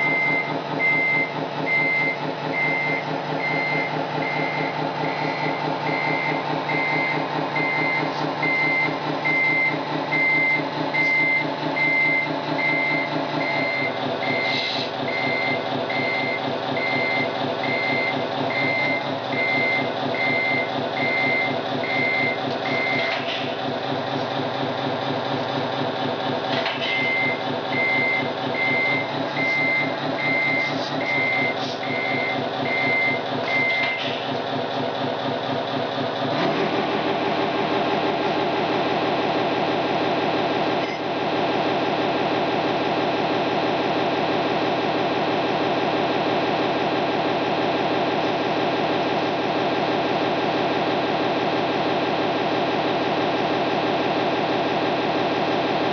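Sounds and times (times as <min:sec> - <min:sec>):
reversing beeps: 0:00.0 - 0:23.3, 0:26.9 - 0:34.1, 0:40.8 - 0:41.0
simulated diesel engine sound: 0:00.0 - 0:55.9.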